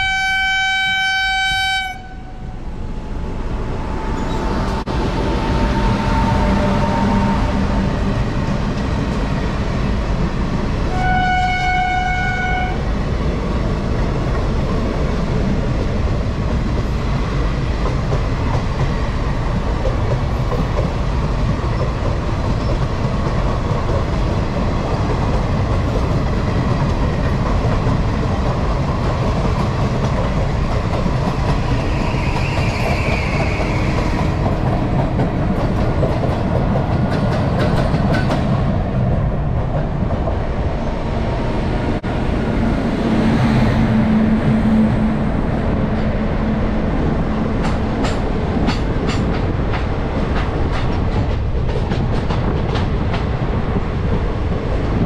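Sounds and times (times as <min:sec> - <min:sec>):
train horn: 0:00.0 - 0:02.6, 0:05.4 - 0:08.0, 0:10.9 - 0:12.8
train wheels clattering: 0:17.7 - 0:40.4, 0:47.4 - 0:54.2.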